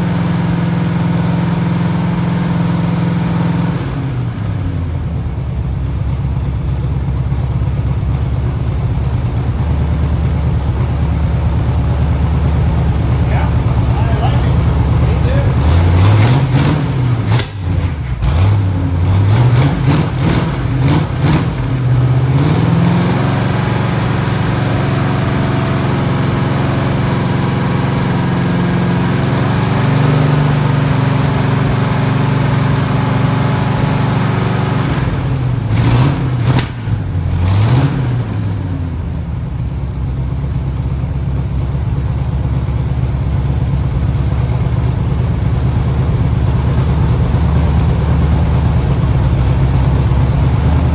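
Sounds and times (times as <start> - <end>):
car engine fast idling: 3.7 - 37.5, 38.2 - 50.9
engine sharp clicks: 10.5 - 22.0.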